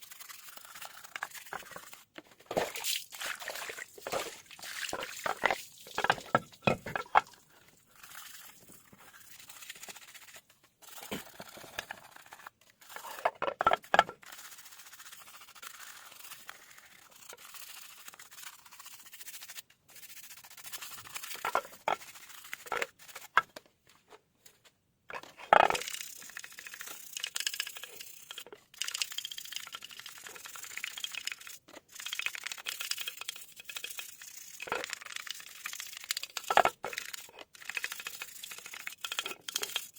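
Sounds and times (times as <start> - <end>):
scraping and scrubbing: 0.1 - 14.8.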